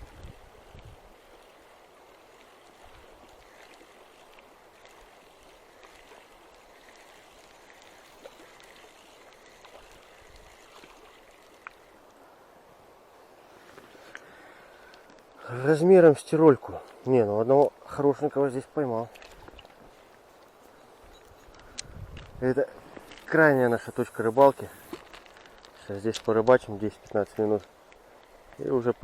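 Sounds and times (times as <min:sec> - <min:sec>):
faint clicks: 0:13.7 - 0:15.4, 0:19.1 - 0:23.3.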